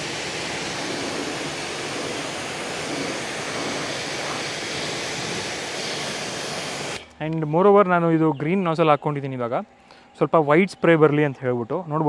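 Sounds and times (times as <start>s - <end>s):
pressure washer spraying water: 0.0s - 7.1s.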